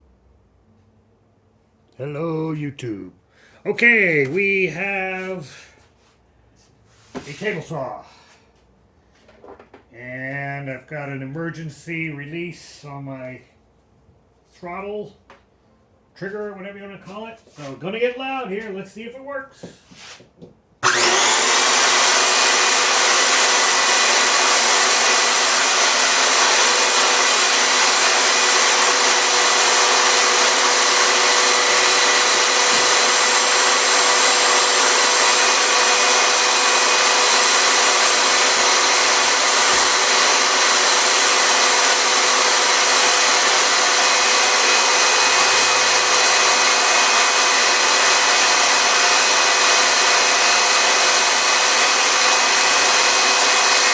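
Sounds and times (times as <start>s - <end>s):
table saw whining: 20.8s - 53.9s.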